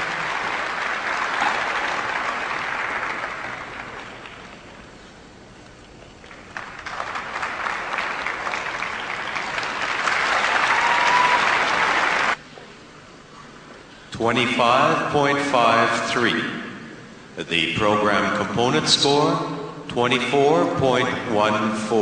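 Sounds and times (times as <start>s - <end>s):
audience applauding: 0.0s - 4.8s, 6.2s - 12.4s.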